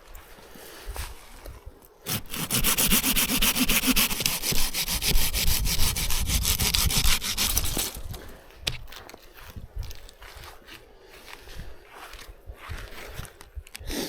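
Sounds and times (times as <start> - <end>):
hand saw cutting wood: 2.1 - 8.4.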